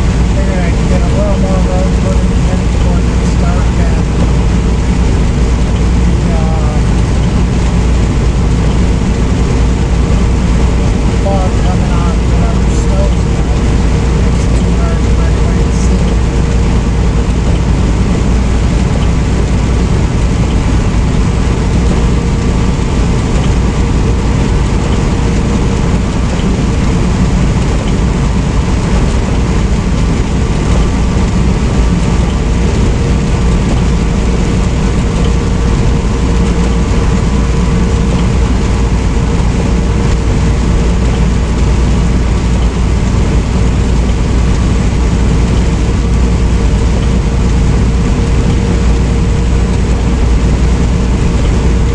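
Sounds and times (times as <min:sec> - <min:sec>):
diesel engine drone: 0:00.0 - 0:51.9
road and tyre noise: 0:00.0 - 0:51.9.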